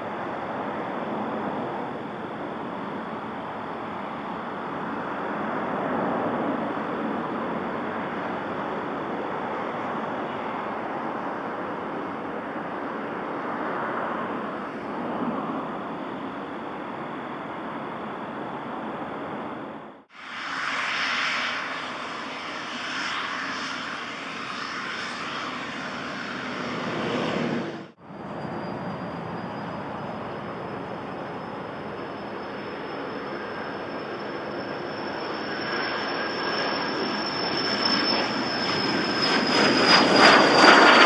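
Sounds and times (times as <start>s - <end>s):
aircraft engines running: 0.0s - 41.0s.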